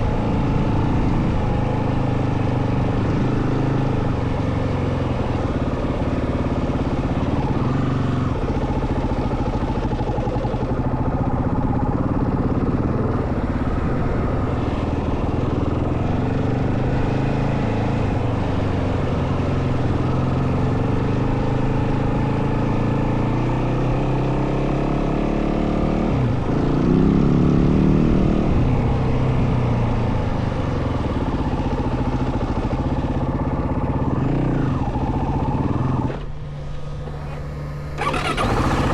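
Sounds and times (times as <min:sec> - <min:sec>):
dirt bike engine revving: 0:34.2 - 0:38.9.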